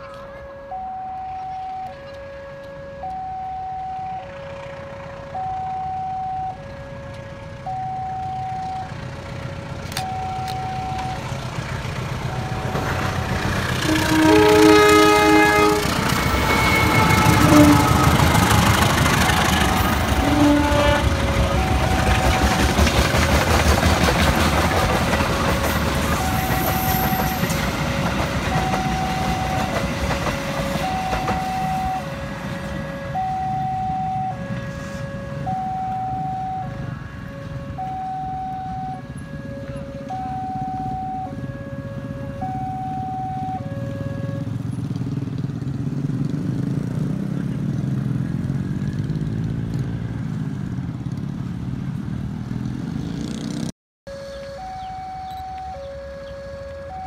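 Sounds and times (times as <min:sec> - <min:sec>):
locomotive horn: 0:00.0 - 0:08.8, 0:12.2 - 0:44.7, 0:54.1 - 0:57.0
two-tone crossing alarm: 0:00.0 - 0:44.8, 0:54.1 - 0:57.0
wheels clattering on rails: 0:08.8 - 0:32.8.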